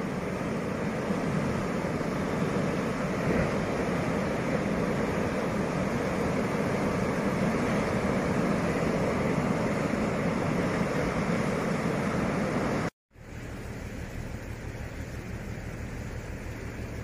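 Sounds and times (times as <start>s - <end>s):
low pulsing rumble: 13.2s - 17.0s.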